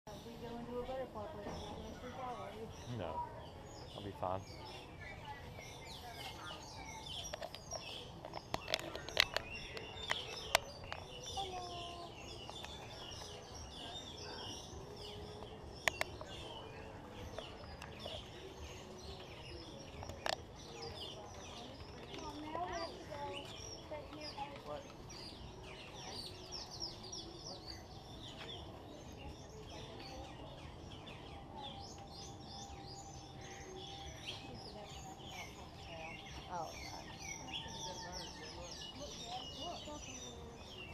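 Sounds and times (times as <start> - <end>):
small birds chirping: 0.1 - 40.9.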